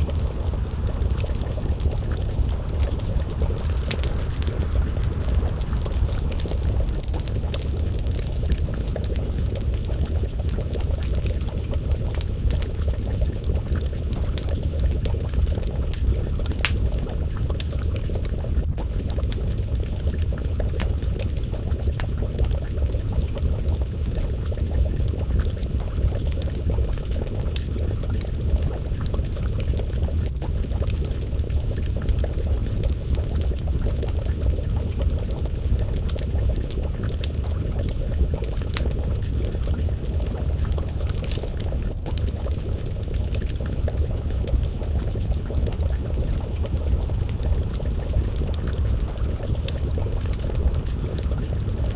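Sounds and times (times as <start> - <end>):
low rumble: 0.0 - 32.6, 33.3 - 51.9
stew bubbling: 0.0 - 51.9
wood fire crackling and popping: 0.0 - 51.9.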